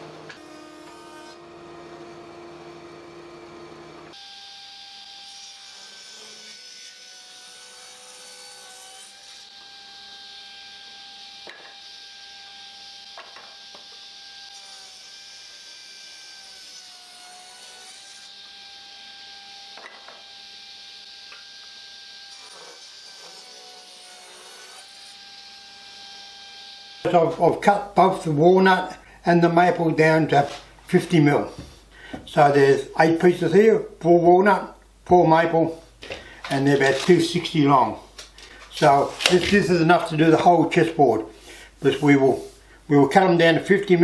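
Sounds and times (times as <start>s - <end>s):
power saw motor whine: 0.0s - 5.8s, 18.3s - 23.4s, 25.1s - 27.1s.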